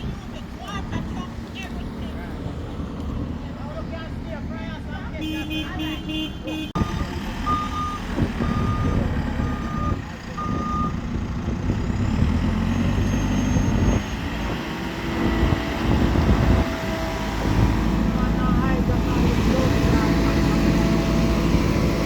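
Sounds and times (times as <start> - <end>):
diesel engine rumble: 0.0 - 22.0
reversing alarm beeping: 6.8 - 11.0.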